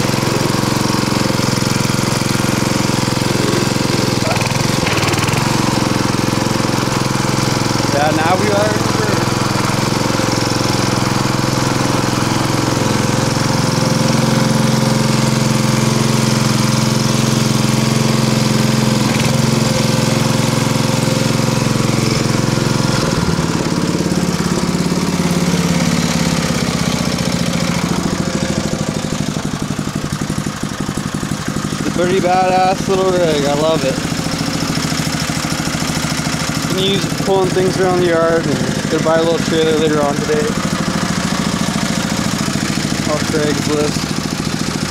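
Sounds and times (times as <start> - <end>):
small lawnmower engine running: 0.0 - 44.9.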